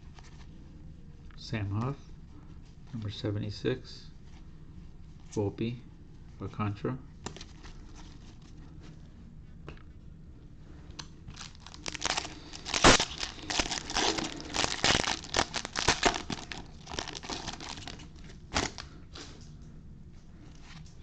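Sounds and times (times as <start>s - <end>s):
foil wrapper tearing and crinkling: 11.3s - 18.9s.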